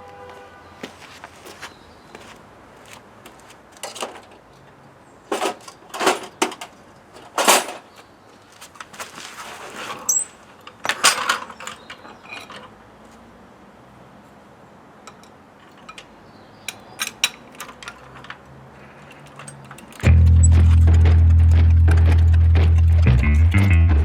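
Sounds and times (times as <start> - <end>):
mechanical rattling and scraping: 18.8 - 23.6.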